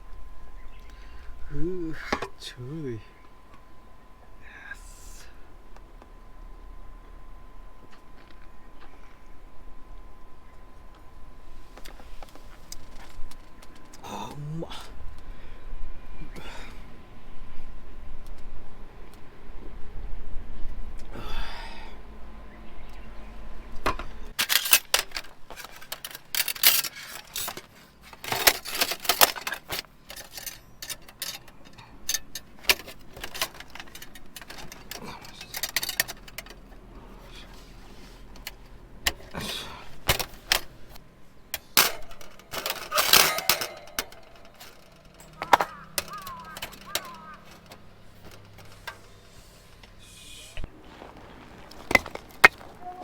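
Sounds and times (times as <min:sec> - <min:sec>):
camping gear clinking and rattling: 0:10.0 - 0:15.3, 0:23.6 - 0:53.0.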